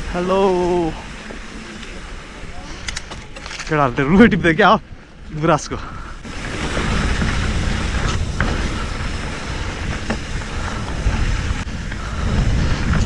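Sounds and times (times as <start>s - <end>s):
bike tyres rolling on dirt: 0.0s - 13.0s
wind buffeting microphone: 0.0s - 13.0s.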